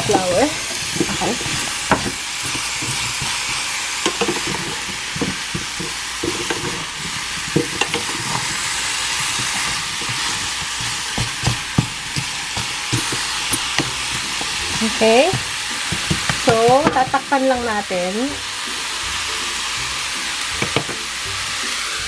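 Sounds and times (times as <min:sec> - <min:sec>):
utensil scraping a pan: 0:00.0 - 0:18.2
vegetables sizzling in a frying pan: 0:00.0 - 0:22.0.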